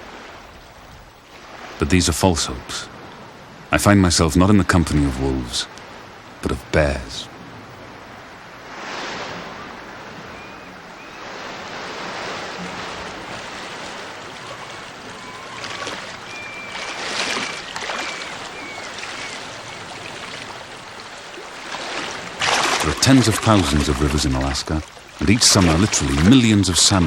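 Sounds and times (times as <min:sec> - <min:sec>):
rushing river water: 0:00.0 - 0:27.0
short high bird calls: 0:14.1 - 0:20.6.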